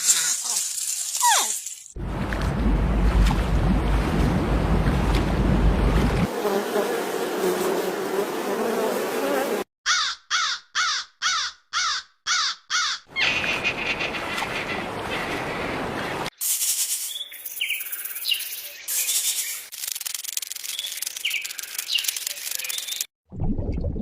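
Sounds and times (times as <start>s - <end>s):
heavy low rumble: 2.0s - 6.3s.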